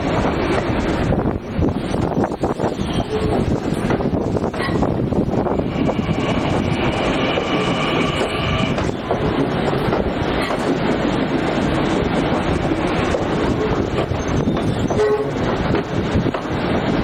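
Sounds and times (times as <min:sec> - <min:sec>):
train rumble and wheel clatter: 0:00.0 - 0:17.0.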